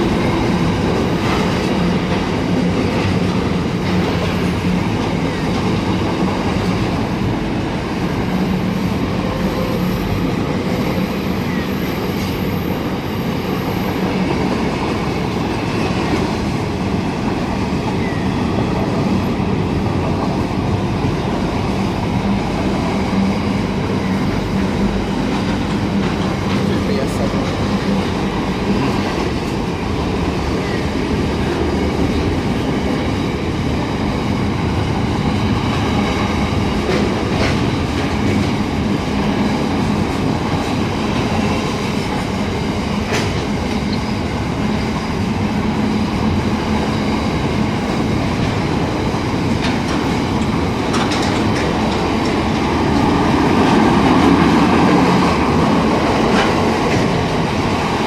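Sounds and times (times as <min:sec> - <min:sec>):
freight train rumble: 0:00.0 - 0:58.0
wheels clicking over rail joints: 0:47.5 - 0:58.0.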